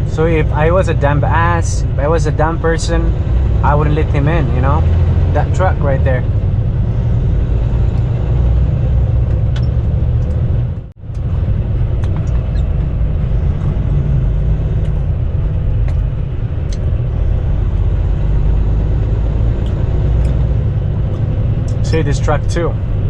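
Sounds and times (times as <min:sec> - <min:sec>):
diesel engine drone: 0:00.0 - 0:23.0
road rumble: 0:00.0 - 0:23.0.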